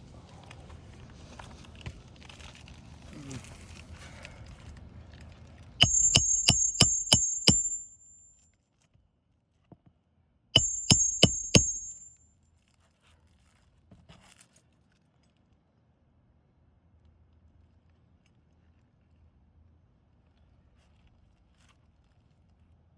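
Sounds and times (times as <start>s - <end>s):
hammer striking nails: 5.8s - 8.2s, 10.6s - 12.2s.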